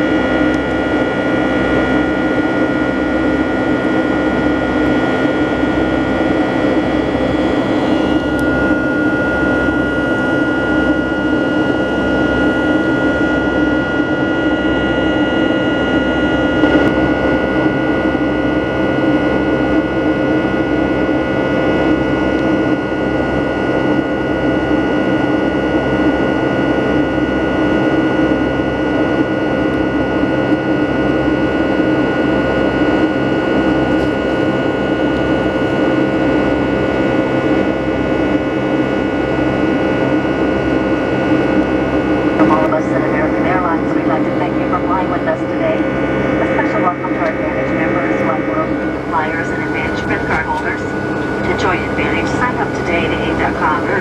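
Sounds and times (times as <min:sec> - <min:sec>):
high engine whine: 0:00.0 - 0:54.0
jet engine cabin rush: 0:42.2 - 0:54.0.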